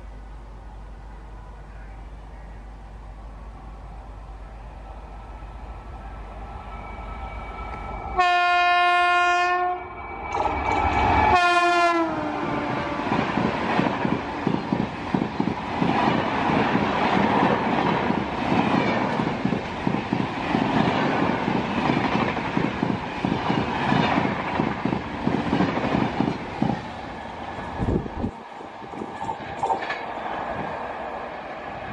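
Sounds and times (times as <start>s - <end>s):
train coaches rumbling past: 0.0s - 31.9s
locomotive horn blasts: 8.2s - 9.9s, 11.3s - 13.1s.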